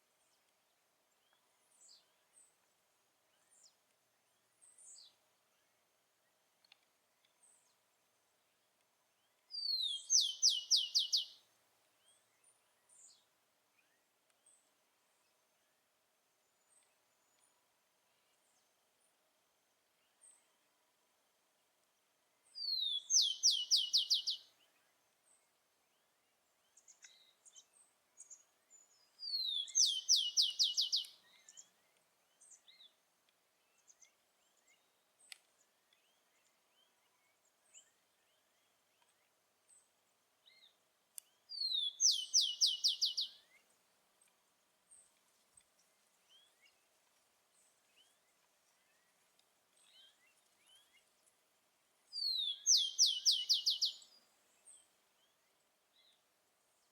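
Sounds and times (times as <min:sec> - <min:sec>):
faint bird chirps: 0:09.2 - 0:11.4, 0:22.5 - 0:33.0, 0:33.6 - 0:43.8, 0:52.1 - 0:56.2
sparrow whistle and trill: 0:09.5 - 0:11.4, 0:22.6 - 0:24.4, 0:29.2 - 0:31.6, 0:41.5 - 0:43.4, 0:52.2 - 0:54.1.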